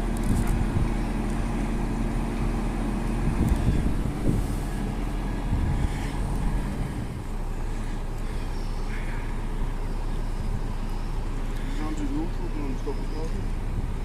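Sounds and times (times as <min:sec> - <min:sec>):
diesel engine droning: 0:00.0 - 0:14.0.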